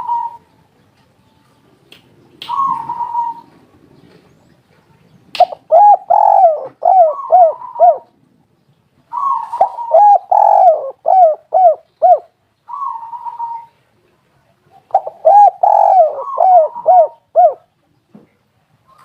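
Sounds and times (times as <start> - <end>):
dove cooing: 0.0 - 0.5, 2.5 - 4.3, 5.4 - 8.2, 9.1 - 13.8, 14.8 - 17.7.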